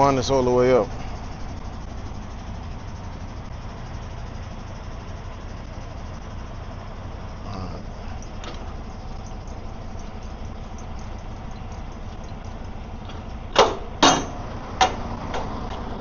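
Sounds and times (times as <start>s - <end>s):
diesel engine idling: 0.0s - 16.0s
sharp metallic knocks: 9.2s - 15.9s.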